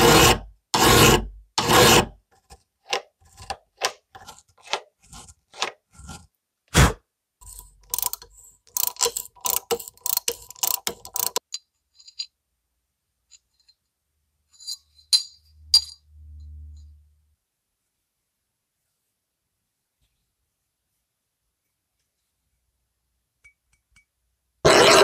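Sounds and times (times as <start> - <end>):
rapid ratchet clicks: 7.5 - 11.4.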